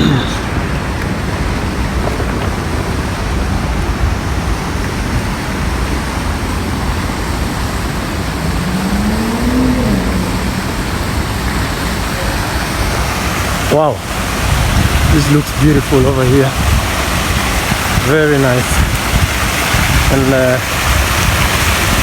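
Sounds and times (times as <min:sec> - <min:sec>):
passing cars: 0:00.0 - 0:14.4
pitched tone rising and falling: 0:08.0 - 0:11.6.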